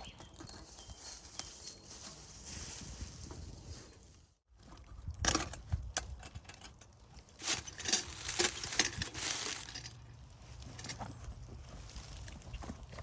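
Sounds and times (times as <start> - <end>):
crunching and crackling: 6.3 - 13.0.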